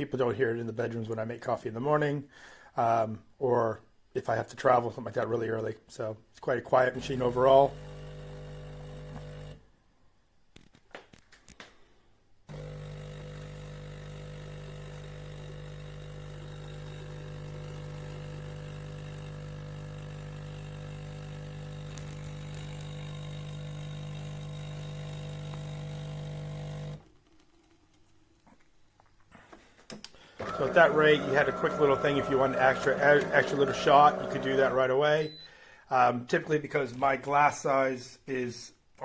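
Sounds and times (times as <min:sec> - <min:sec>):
espresso machine pump humming: 0:07.0 - 0:09.6, 0:12.5 - 0:27.1, 0:30.4 - 0:35.0.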